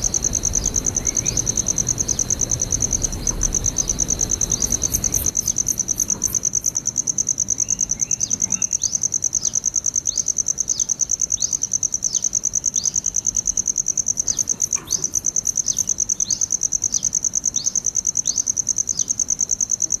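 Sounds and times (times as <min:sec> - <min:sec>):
insect chirring: 0:00.0 - 0:20.0.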